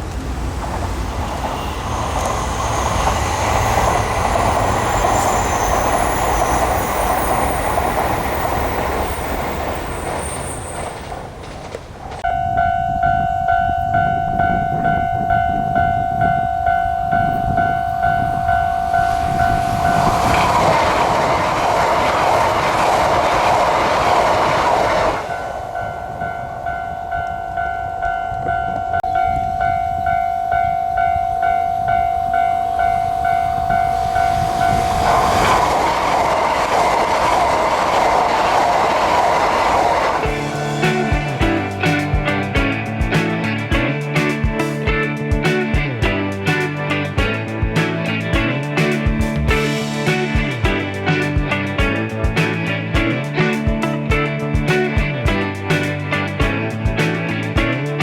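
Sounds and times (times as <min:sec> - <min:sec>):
train running past: 0:00.0 - 0:58.0
level-crossing alarm ringing: 0:01.2 - 0:11.2, 0:12.2 - 0:44.8.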